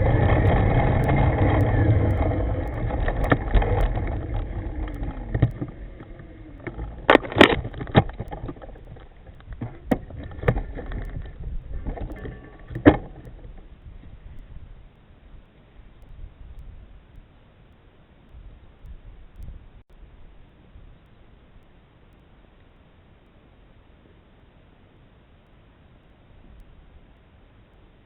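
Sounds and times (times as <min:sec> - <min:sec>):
sharp clicks and knocks: 0:00.0 - 0:13.7
wind and road rumble: 0:00.0 - 0:17.4
faint electric motor whine: 0:00.0 - 0:28.0.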